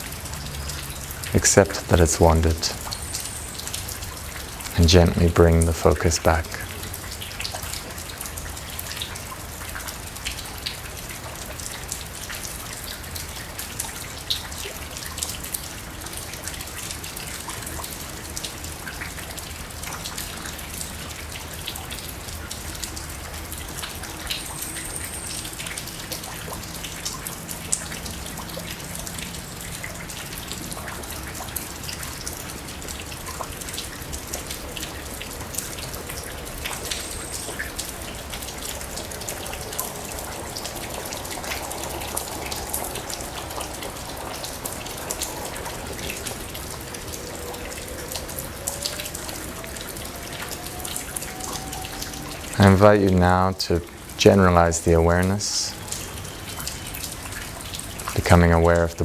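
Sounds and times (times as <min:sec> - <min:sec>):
raindrops ticking: 0:00.0 - 0:59.0
steady falling rain: 0:00.0 - 0:59.0.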